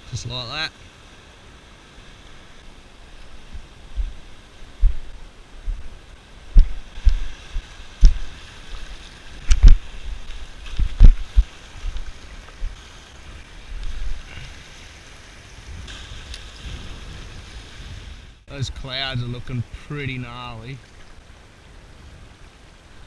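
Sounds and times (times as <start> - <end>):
steady hiss of wind: 0.0 - 23.0
wind buffeting microphone: 3.1 - 12.8, 15.5 - 18.5.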